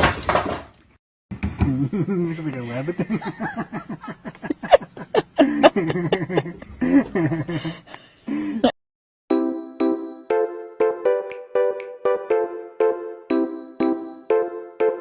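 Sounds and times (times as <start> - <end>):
person laughing: 1.6 - 7.8.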